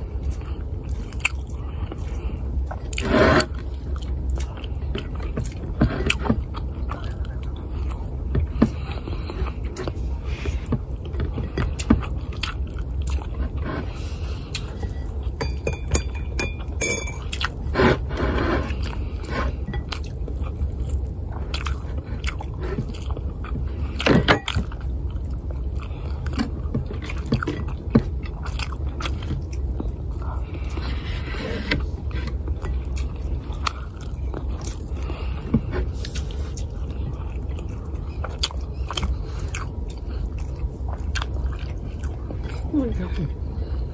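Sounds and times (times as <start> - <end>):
person chewing with wet smacks: 0.0 - 15.4, 16.6 - 18.1, 18.7 - 31.0, 31.7 - 43.9
steady low hum: 0.0 - 43.9.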